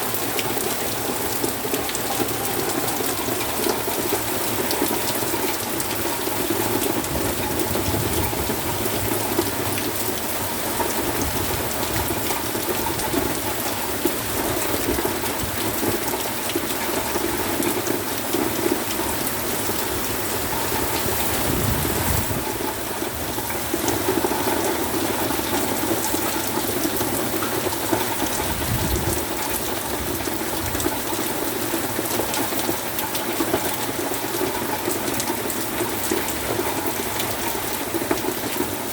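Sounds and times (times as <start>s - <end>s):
heavy rain pouring: 0.0s - 38.9s
strong wind gusts: 20.2s - 22.7s, 28.4s - 29.3s.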